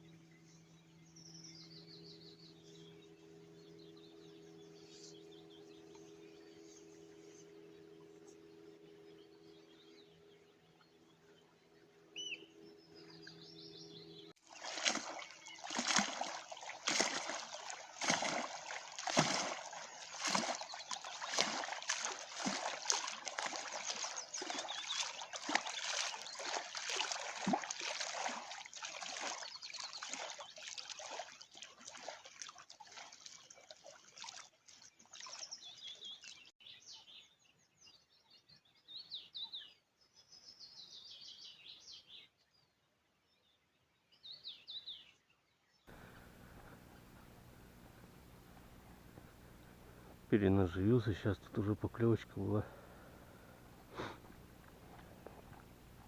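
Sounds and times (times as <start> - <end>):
small birds chirping: 0.0 - 42.8
water splashing and trickling: 14.3 - 36.5, 45.9 - 56.0.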